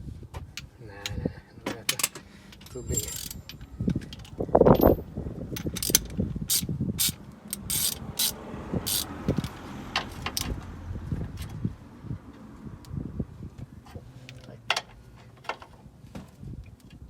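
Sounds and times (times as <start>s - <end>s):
tools clanking on metal: 1.7s - 6.1s.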